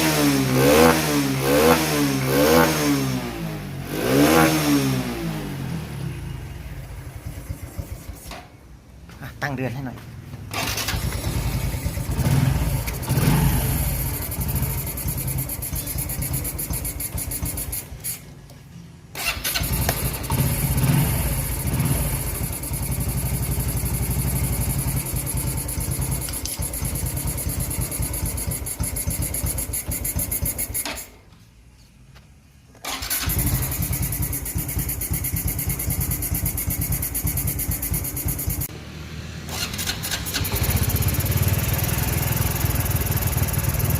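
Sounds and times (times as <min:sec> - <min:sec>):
motorcycle engine idling: 0:05.8 - 0:08.2, 0:10.0 - 0:18.0, 0:19.6 - 0:30.8, 0:33.2 - 0:38.9, 0:39.5 - 0:43.9.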